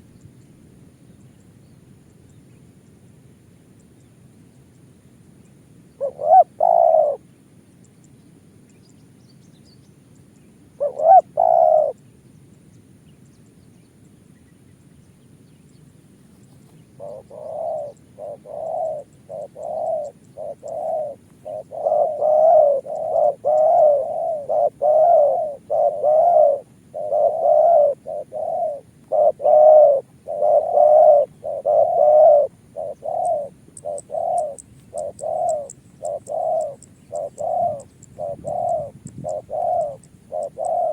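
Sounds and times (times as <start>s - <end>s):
dove cooing: 6.0s - 7.2s, 10.8s - 12.0s, 16.6s - 40.9s.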